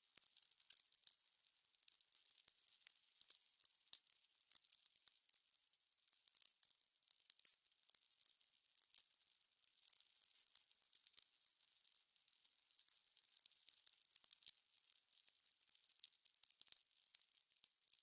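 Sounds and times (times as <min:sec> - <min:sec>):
fire crackling and popping: 0:00.0 - 0:18.0
faint fire hiss: 0:09.0 - 0:17.3.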